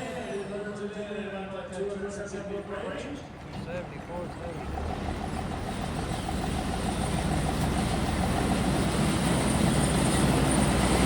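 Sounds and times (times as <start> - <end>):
diesel truck engine under load: 3.2 - 11.0.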